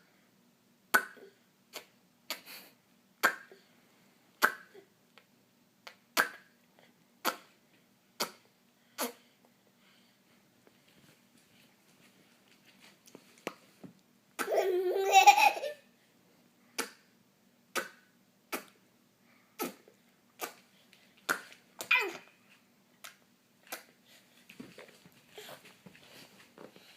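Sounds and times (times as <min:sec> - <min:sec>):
mouth pops and clicks: 0:17.7 - 0:18.8, 0:21.3 - 0:21.9.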